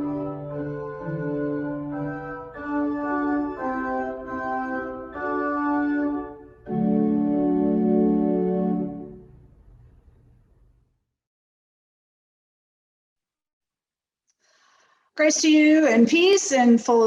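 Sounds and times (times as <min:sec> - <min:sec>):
church organ chords: 0:00.0 - 0:10.2.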